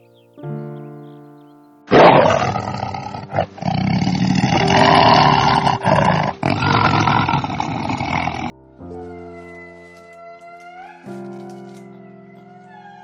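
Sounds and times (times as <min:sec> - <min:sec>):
big cat roaring: 0:01.9 - 0:08.5.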